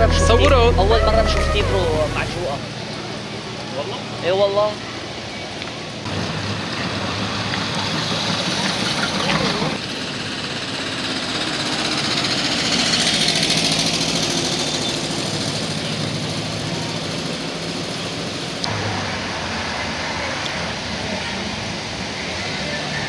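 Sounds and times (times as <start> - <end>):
car engine idling: 0.0 - 2.7
car engines driving past: 4.8 - 23.0.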